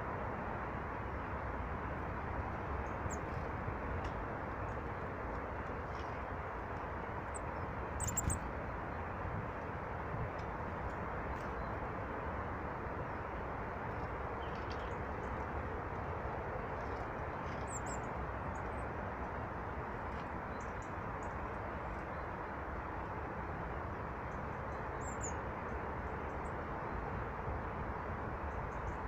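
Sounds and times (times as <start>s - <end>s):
small birds chirping: 8.0s - 8.4s.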